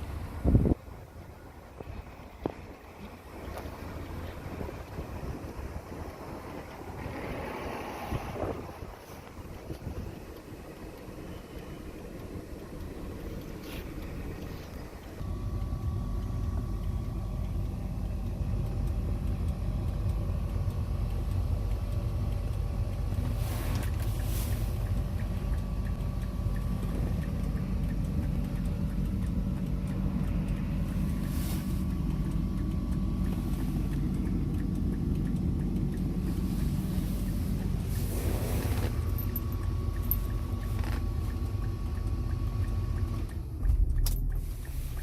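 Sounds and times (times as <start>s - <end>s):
car engine rumbling: 0.0s - 45.0s
hissing swishes: 36.4s - 38.8s.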